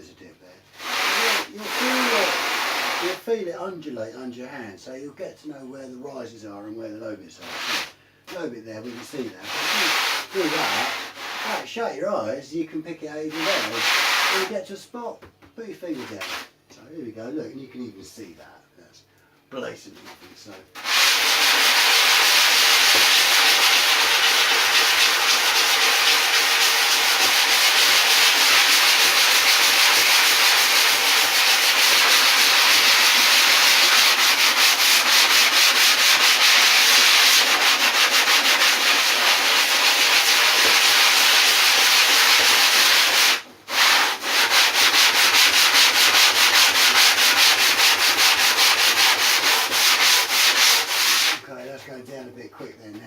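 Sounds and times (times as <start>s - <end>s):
sandpaper rasping on foam: 0.7s - 3.2s, 7.4s - 8.0s, 8.8s - 11.7s, 13.3s - 14.6s, 15.9s - 16.5s, 20.8s - 51.4s.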